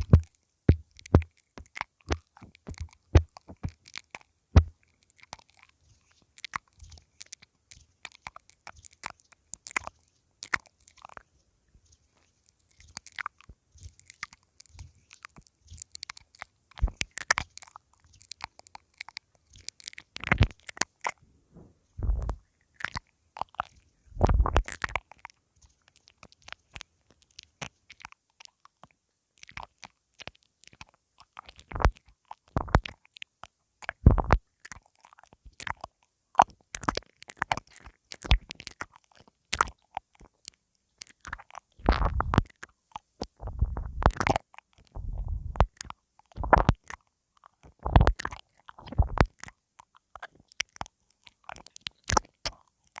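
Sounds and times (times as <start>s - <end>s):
crunchy clicks and rustles: 0.0s - 53.0s
low thumps on microphone: 21.5s - 22.4s, 43.4s - 44.1s, 45.0s - 45.6s.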